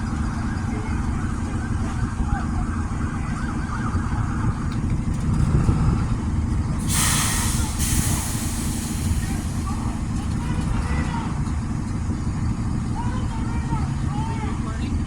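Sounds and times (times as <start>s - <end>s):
street traffic rumble: 0.0s - 15.0s
burst of hissing: 6.8s - 9.9s.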